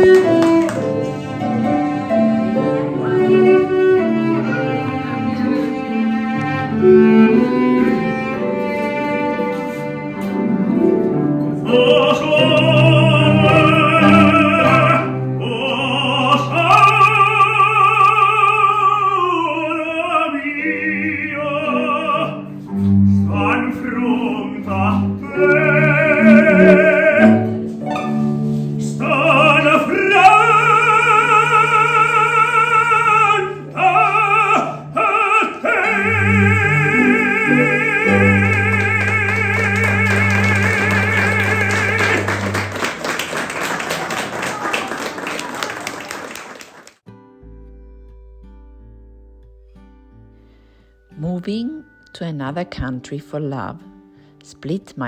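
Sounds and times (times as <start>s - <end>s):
instrumental classical music: 0.0s - 55.0s
operatic singing with vibrato: 11.6s - 45.6s.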